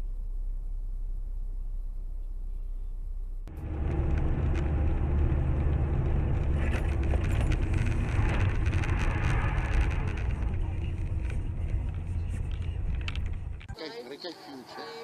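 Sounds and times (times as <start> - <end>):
car engine and road noise: 0.0 - 15.0
small clicks and rattles: 3.6 - 13.7.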